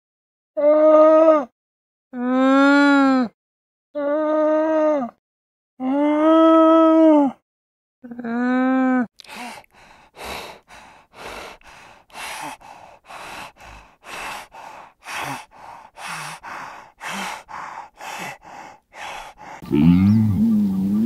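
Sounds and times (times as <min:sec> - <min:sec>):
wild dog breathing heavily: 0:09.7 - 0:19.6.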